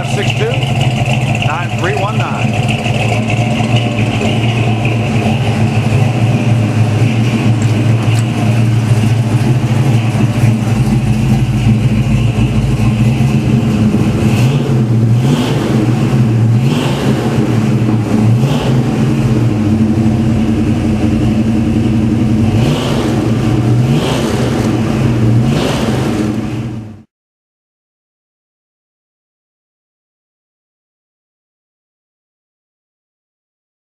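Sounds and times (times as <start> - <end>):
engine revving blips: 0.0 - 27.0
vee eight engine idling: 0.0 - 27.0.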